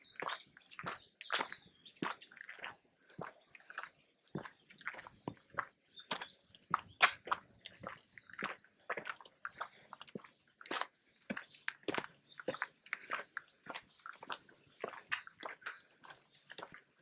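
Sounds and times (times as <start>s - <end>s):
footsteps crunching on forest path: 0.0s - 17.0s.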